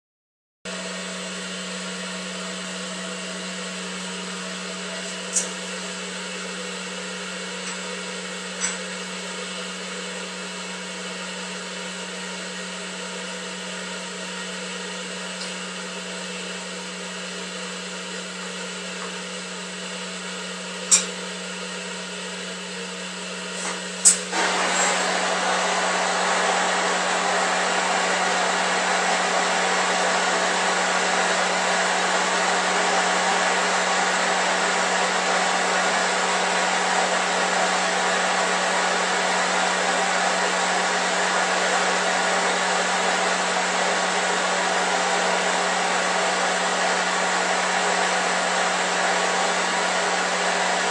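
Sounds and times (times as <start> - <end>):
brazing torch rushing: 23.6 - 33.5.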